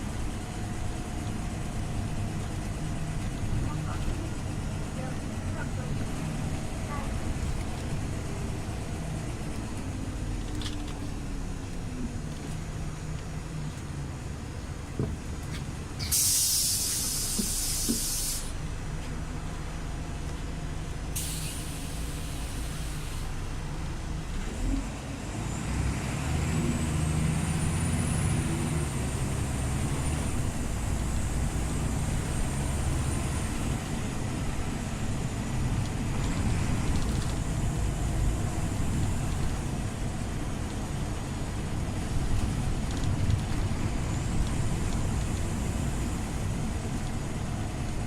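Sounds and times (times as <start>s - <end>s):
bus engine humming: 0.0s - 48.0s
compressed air hiss: 16.0s - 18.6s, 21.2s - 23.3s.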